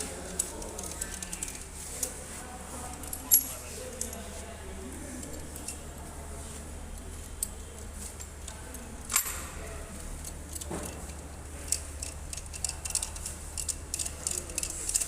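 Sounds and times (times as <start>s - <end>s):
metal tools and bolts clinking: 2.9s - 4.4s, 9.1s - 9.6s, 10.2s - 15.0s.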